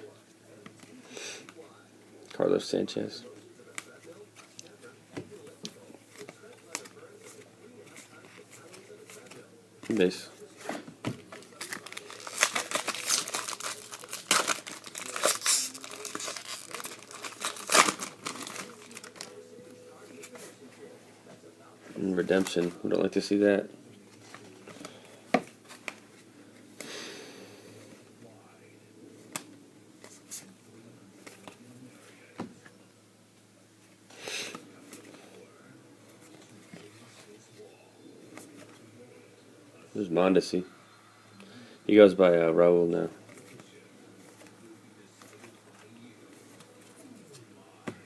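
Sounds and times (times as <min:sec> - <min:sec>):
foil wrapper crinkling and tearing: 0:11.4 - 0:19.4.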